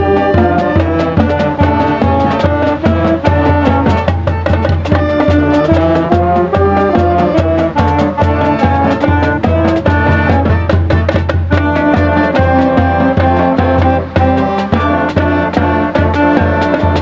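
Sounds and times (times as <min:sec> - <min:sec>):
brass melody: 0:00.0 - 0:17.0
marching drumline beat: 0:00.0 - 0:17.0.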